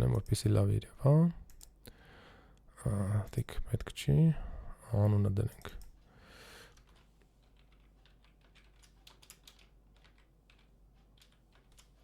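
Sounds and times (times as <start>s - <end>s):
typing on computer keyboard: 6.7s - 12.0s.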